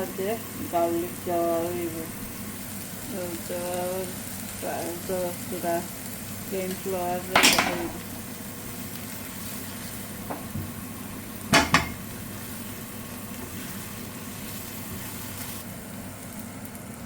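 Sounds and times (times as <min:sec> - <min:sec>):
food sizzling in a frying pan: 0:00.0 - 0:17.0
utensil knocking against pan: 0:11.5 - 0:12.0.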